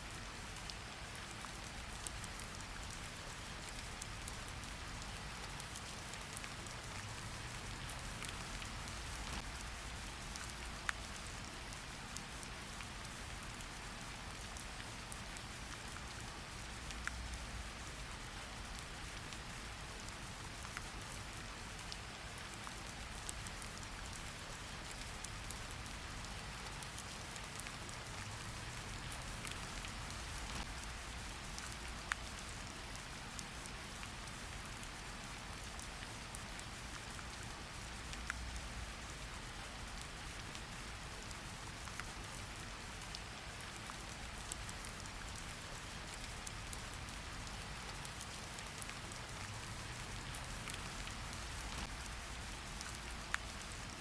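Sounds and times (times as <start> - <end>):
steady rain patter: 0.0 - 54.0.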